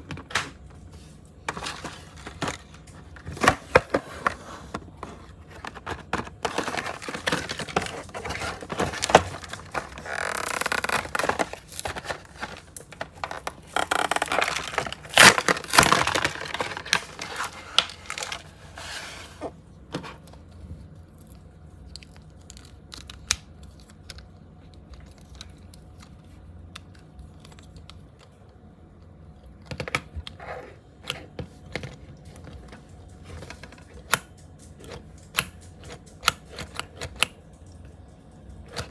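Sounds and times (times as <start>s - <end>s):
packaging torn and crinkled: 5.8s - 18.6s.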